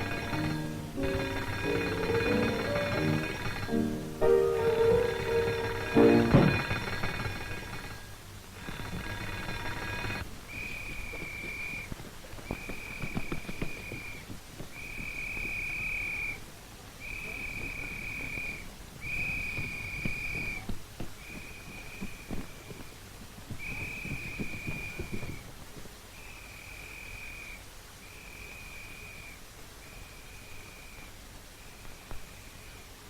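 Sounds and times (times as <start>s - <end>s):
ringing with many overtones: 0.0s - 6.9s
high steady alarm tone blasts: 0.0s - 7.2s.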